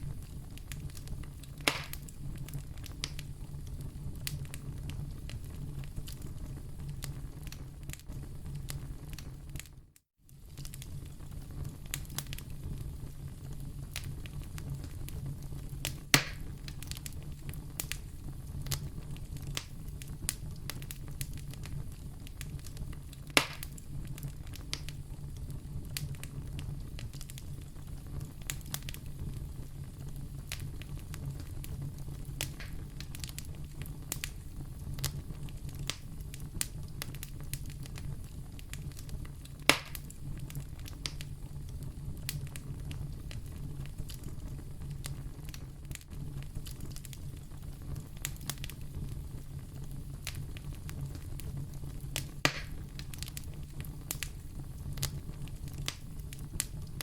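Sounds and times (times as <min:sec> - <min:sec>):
loud fire pops: 0:00.0 - 0:09.8, 0:10.4 - 0:57.0
fire crackling: 0:00.0 - 0:57.0
fire flames rumbling: 0:00.0 - 0:57.0.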